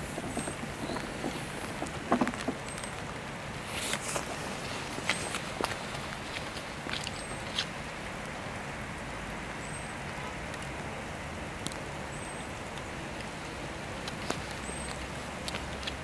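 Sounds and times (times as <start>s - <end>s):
rain on tarmac and car: 0.0s - 16.0s
sharp drip ticks: 14.0s - 16.0s.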